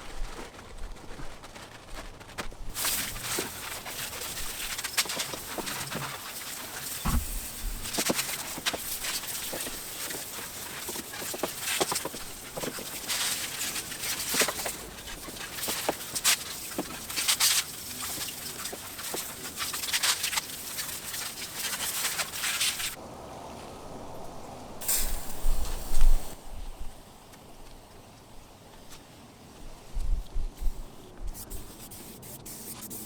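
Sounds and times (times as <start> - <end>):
sped-up spray hissing and scrubbing: 2.7 - 23.0, 24.8 - 26.4, 28.8 - 33.0
loud knocks: 7.0 - 7.9.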